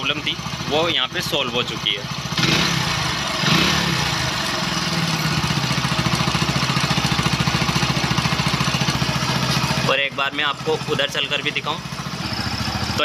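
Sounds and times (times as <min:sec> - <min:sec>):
motorcycle engine idling: 0:00.0 - 0:13.0
motorcycle engine revving: 0:00.0 - 0:13.0
man talking: 0:09.9 - 0:11.9.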